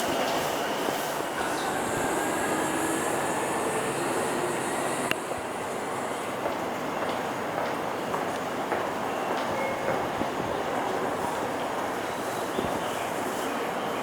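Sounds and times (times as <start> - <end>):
electric train running rumble: 0.0 - 8.0
faint high whine: 1.2 - 7.0.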